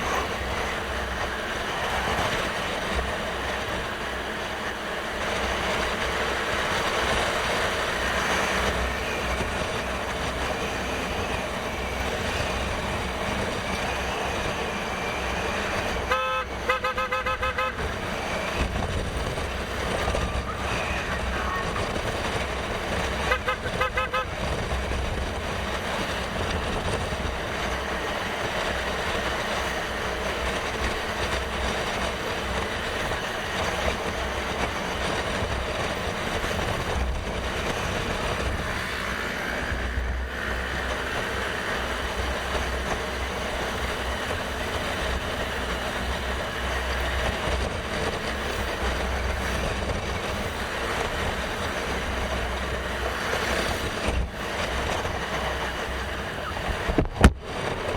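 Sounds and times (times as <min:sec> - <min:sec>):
motorcycle engine: 0:00.0 - 0:57.9
road noise: 0:00.0 - 0:57.9
wind rushing over microphone: 0:17.8 - 0:57.9.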